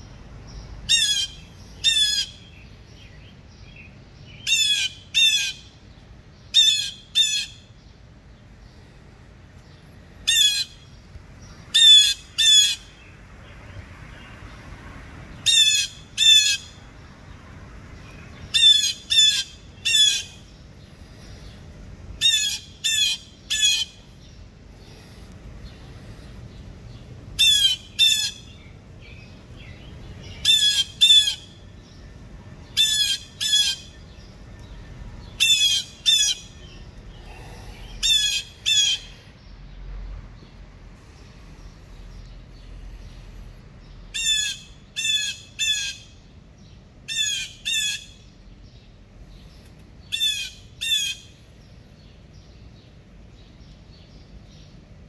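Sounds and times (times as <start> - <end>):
bird squawking calls: 0.9 - 2.6, 4.4 - 5.7, 6.5 - 7.7, 10.2 - 10.8, 11.7 - 12.9, 15.4 - 16.8, 18.5 - 20.5, 22.2 - 24.0, 27.4 - 28.6, 30.3 - 31.6, 32.7 - 34.1, 35.4 - 39.2, 44.1 - 46.2, 47.1 - 48.3, 50.1 - 51.4.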